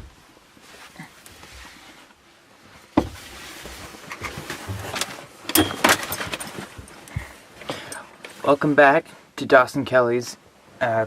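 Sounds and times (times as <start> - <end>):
rustling: 0.0 - 8.8.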